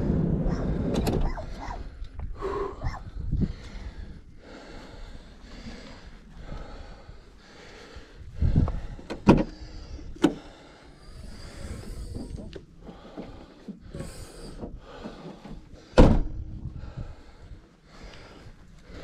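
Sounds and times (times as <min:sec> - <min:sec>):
bicycle tyres and wind hiss: 0:00.0 - 0:19.0
low rumbling thump: 0:16.0 - 0:17.0.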